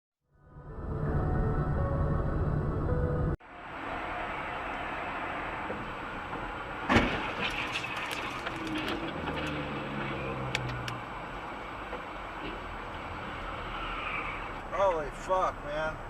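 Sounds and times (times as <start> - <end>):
car traffic: 0.9 - 16.0
loud crash: 6.8 - 9.5.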